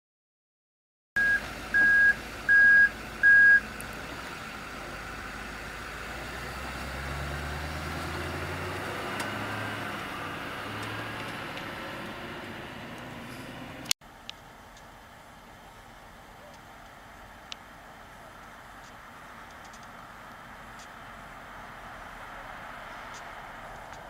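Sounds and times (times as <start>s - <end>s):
vehicle reversing alarm beeps: 1.2s - 3.8s
vehicle engine humming: 1.2s - 24.0s.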